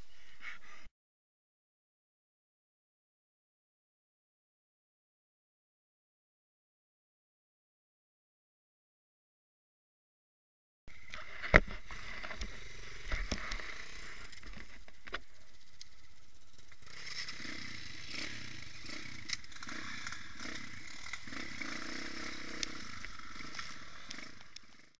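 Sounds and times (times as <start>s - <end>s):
motorcycle engine running: 11.7s - 24.9s.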